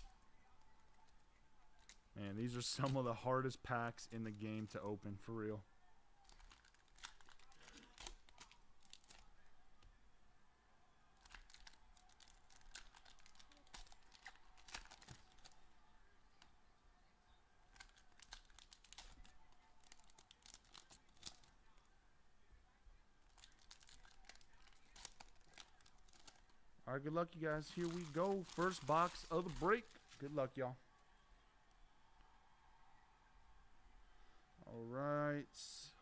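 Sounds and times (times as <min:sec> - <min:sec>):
wrappers crinkling and tearing: 0:01.8 - 0:03.1, 0:06.2 - 0:09.3, 0:11.2 - 0:15.6, 0:17.7 - 0:21.8, 0:23.3 - 0:26.6, 0:27.4 - 0:30.5.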